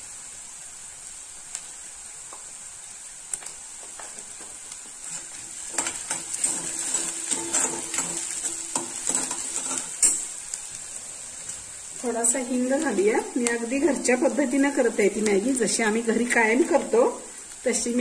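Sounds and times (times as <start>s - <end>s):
vegetables sizzling in oil: 0.0s - 18.0s
spoon scraping metal pan: 5.0s - 10.4s.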